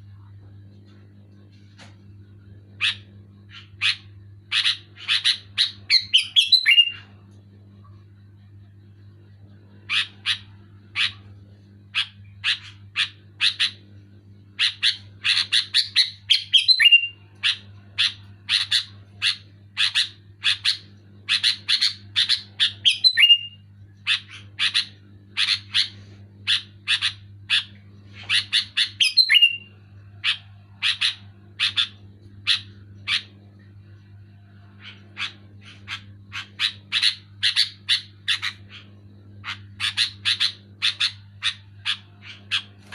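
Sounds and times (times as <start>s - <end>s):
low electrical hum: 0.0s - 42.9s.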